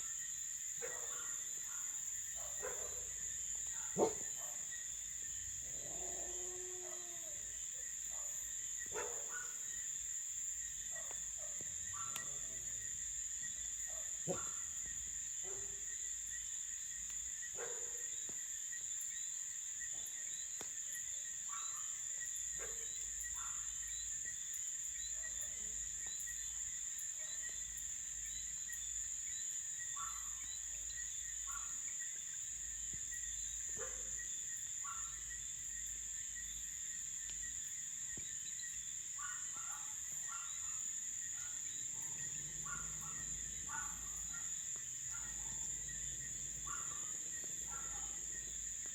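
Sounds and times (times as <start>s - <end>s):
crickets trilling: 0.0s - 48.9s.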